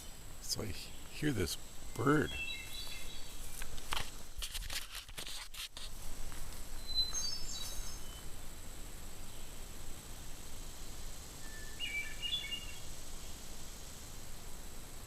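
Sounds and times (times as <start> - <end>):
songbird singing: 0.0 - 4.2, 6.4 - 9.9, 11.3 - 13.6
clicks and rustles: 3.5 - 6.6.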